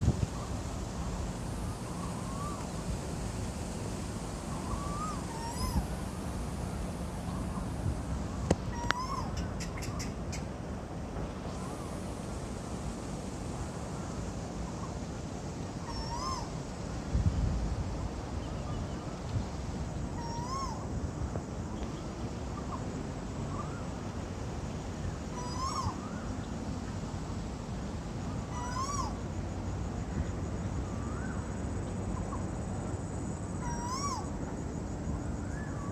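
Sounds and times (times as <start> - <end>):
bird calling: 1.6 - 3.0, 4.4 - 10.6, 15.8 - 16.6, 20.2 - 20.9, 25.2 - 26.6, 28.3 - 29.2, 33.6 - 34.4
koel calling: 8.6 - 10.5, 25.3 - 26.0, 28.5 - 29.2, 33.6 - 34.3.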